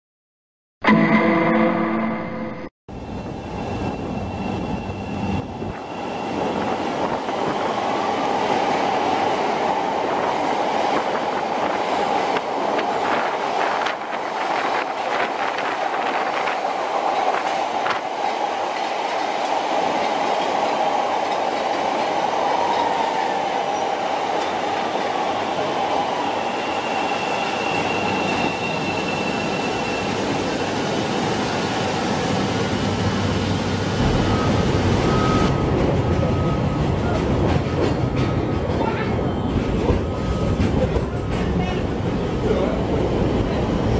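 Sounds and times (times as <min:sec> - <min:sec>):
train running on tracks: 0:02.9 - 0:43.9
wheel squeal: 0:26.3 - 0:30.8.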